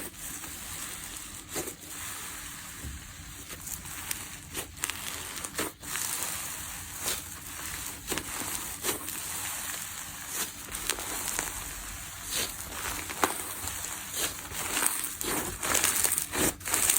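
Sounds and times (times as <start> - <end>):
slime squished by hand: 3.5 - 16.9.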